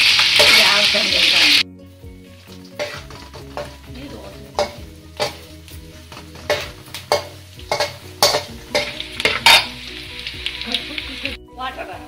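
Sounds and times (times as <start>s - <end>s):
metal spatula scraping a pan: 0.0s - 1.1s, 2.5s - 10.7s
food sizzling in a pan: 0.0s - 11.4s.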